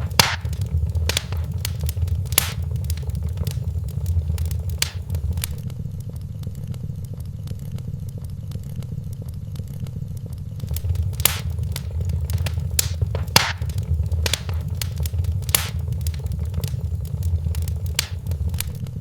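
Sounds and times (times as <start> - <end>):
fire popping: 0.0 - 5.6, 10.6 - 18.9
low rumble of flames: 0.0 - 5.6, 10.6 - 18.9
wood fire crackling: 0.0 - 5.6, 10.6 - 18.9.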